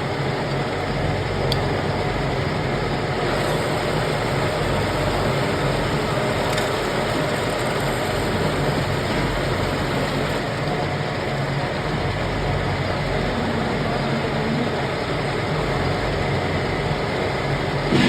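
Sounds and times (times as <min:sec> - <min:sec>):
lathe machining: 0:00.0 - 0:18.0
low motor hum: 0:02.1 - 0:10.6.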